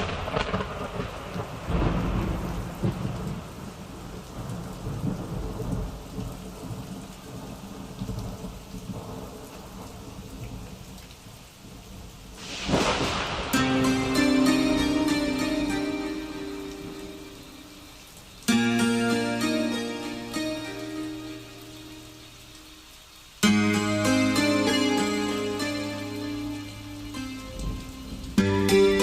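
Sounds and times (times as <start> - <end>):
rolls of thunder: 0.0 - 9.4, 12.4 - 13.6
rain falling: 0.0 - 29.0.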